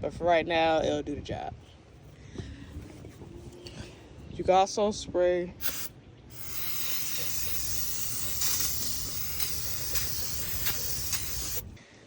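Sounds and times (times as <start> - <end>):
aerosol can spraying hiss: 5.6 - 11.7.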